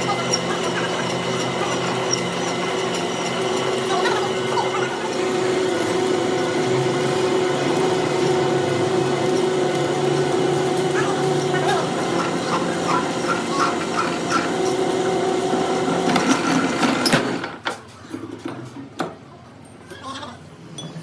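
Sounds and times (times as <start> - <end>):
machine tool humming: 0.0 - 17.5.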